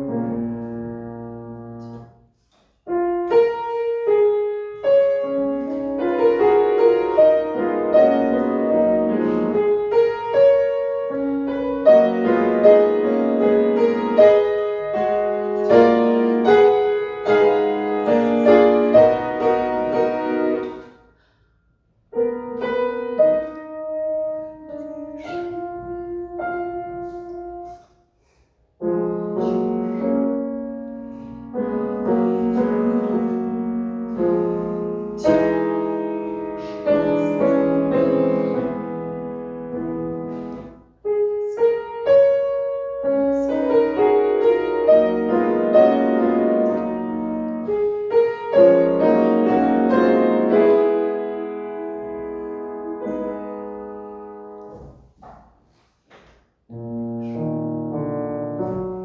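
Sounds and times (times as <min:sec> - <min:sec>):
slow classical piano chords: 0:00.0 - 0:59.0.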